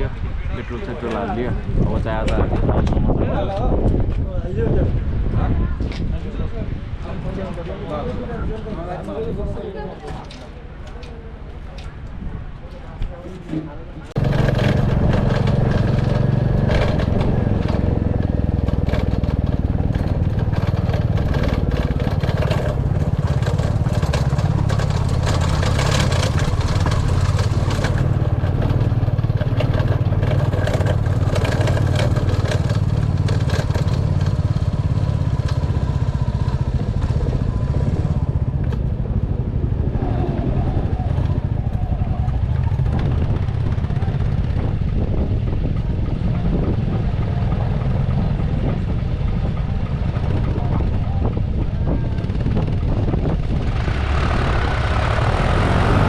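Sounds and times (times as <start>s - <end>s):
clatter and knocks from wheels: 14.2s - 39.4s, 41.0s - 56.0s
motorcycle engine running: 14.2s - 56.0s.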